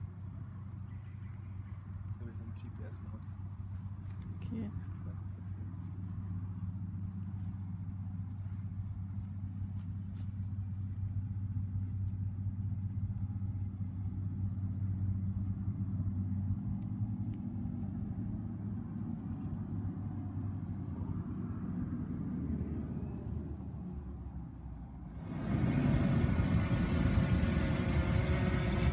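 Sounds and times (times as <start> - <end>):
drone propellers humming: 25.0 - 28.9.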